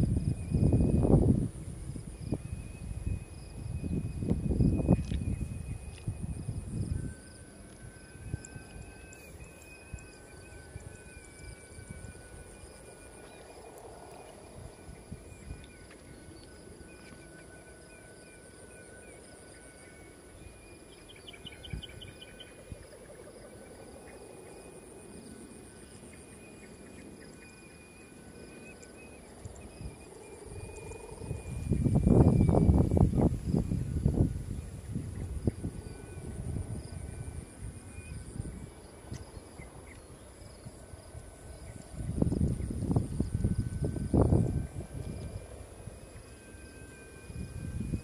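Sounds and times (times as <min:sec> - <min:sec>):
wind rumble on microphone: 0:00.0 - 0:26.4, 0:27.0 - 0:48.0
high insect drone: 0:00.0 - 0:48.0
thin whistling tones: 0:02.2 - 0:22.6.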